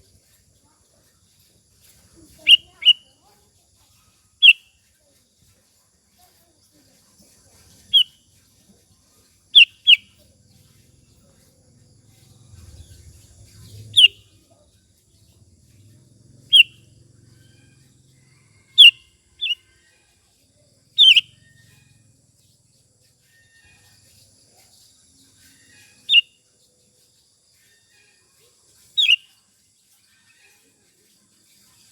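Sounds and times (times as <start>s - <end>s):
bird call notes: 2.4s - 3.0s, 4.4s - 4.6s, 13.9s - 14.2s, 16.5s - 16.8s, 18.8s - 19.6s, 21.0s - 21.3s, 29.0s - 29.2s.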